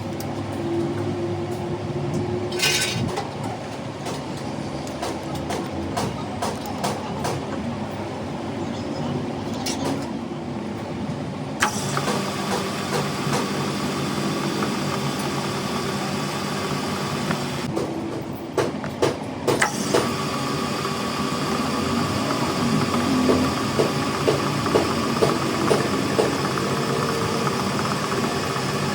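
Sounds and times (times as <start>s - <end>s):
workshop machinery whining: 0.0s - 28.9s.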